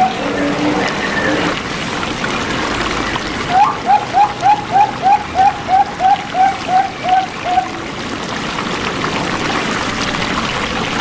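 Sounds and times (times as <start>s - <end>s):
trickle of running water: 0.0s - 11.0s
dove cooing: 3.5s - 7.8s.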